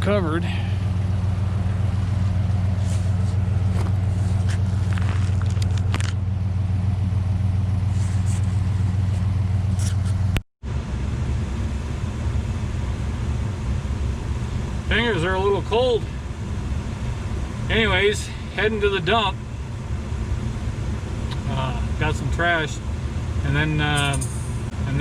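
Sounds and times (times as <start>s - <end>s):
truck engine idling: 0.0s - 25.0s
light scrapes: 2.7s - 3.4s, 7.9s - 10.2s.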